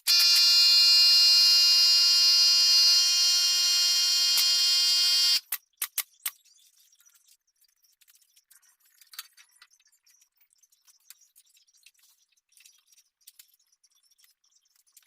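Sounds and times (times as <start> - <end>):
power tool whining: 0.0 - 5.4.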